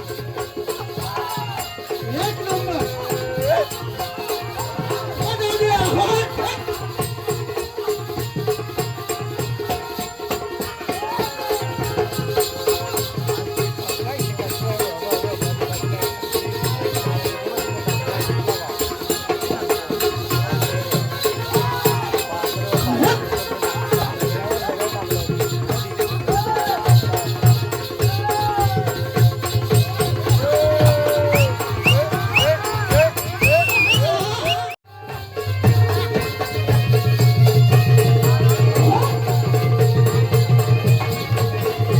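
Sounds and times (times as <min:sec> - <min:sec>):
jingling cymbals: 0:00.0 - 0:41.9
repeating drum beat: 0:00.0 - 0:41.9
person singing: 0:29.6 - 0:41.9.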